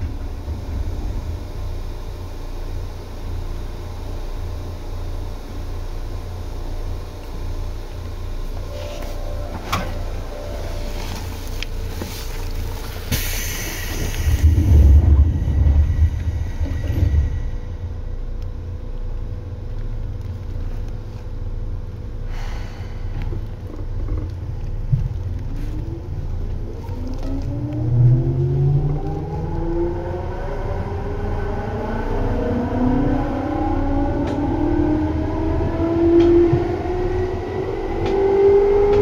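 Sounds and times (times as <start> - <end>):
train running rumble: 0.0 - 39.0
traction motor whine: 8.3 - 18.7
brief hiss: 13.1 - 14.8.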